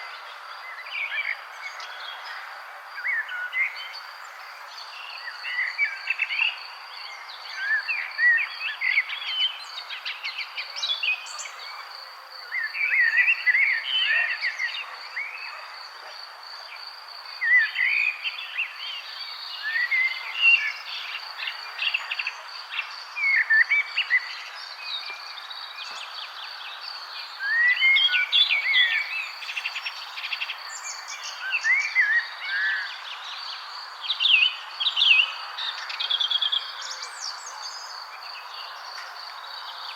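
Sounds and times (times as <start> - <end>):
songbirds warbling: 17.3 - 39.9.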